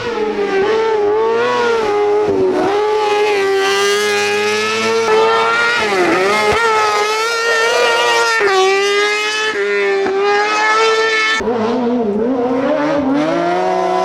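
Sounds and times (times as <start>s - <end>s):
race car engine at high revs: 3.4s - 11.4s.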